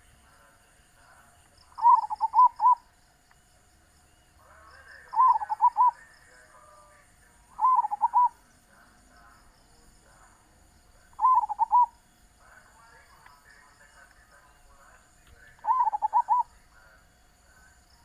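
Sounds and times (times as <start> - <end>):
dove cooing: 1.7 - 2.9, 4.4 - 6.9, 7.5 - 8.4, 11.1 - 12.0, 15.4 - 17.0.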